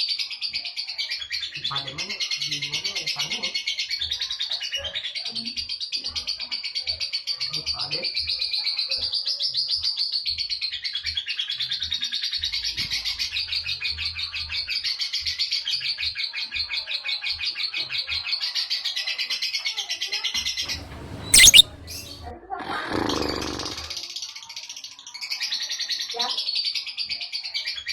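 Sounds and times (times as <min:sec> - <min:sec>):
lovebird rattling chatter: 0:20.8 - 0:22.2.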